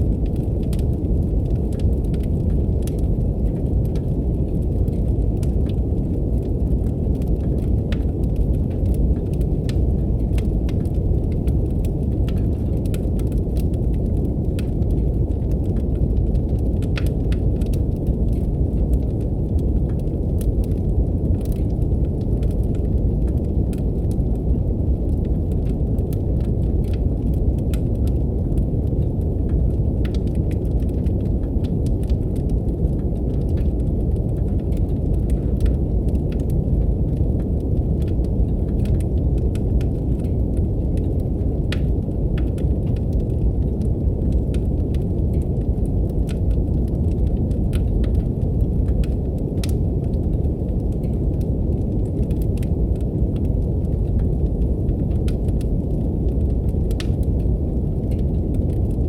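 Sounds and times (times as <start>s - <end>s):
deep even brown noise: 0.0s - 59.0s
fireplace fire crackling: 0.0s - 59.0s.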